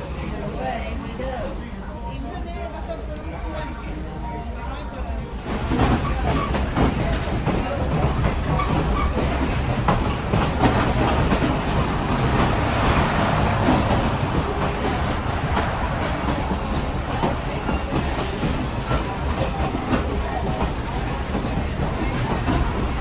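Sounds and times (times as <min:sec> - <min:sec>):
train rumbling along track: 0:00.0 - 0:23.0
wheels clattering over rail joints: 0:05.6 - 0:23.0.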